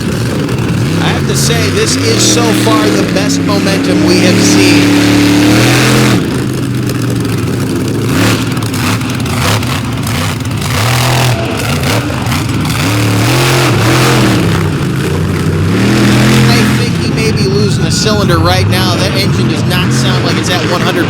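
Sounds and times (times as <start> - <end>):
truck engine revving and popping: 0.0 - 21.0
commentator speaking: 0.8 - 5.3, 16.2 - 21.0.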